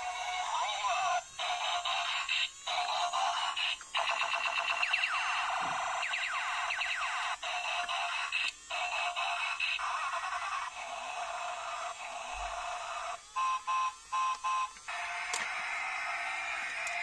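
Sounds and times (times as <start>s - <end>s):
toy electronic chiming: 12.2s - 17.0s.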